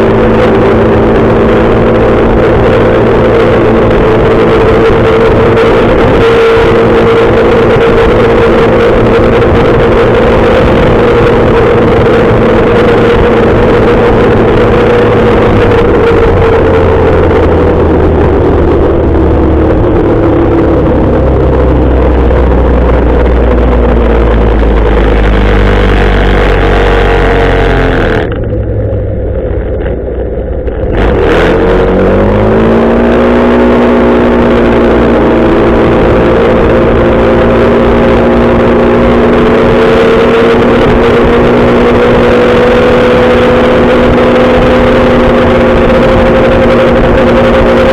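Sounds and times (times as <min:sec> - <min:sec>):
wind rushing: 0:00.0 - 0:28.4
motorcycle engine running: 0:00.0 - 0:47.9.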